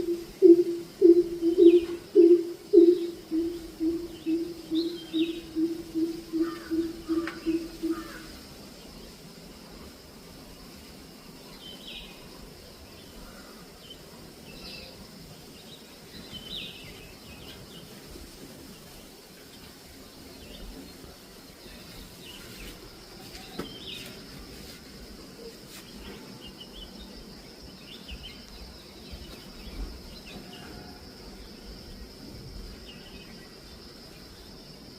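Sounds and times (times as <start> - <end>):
high-pitched drone: 0.0 - 8.0
bird chirping: 0.0 - 8.2
faint background noise: 0.0 - 34.9.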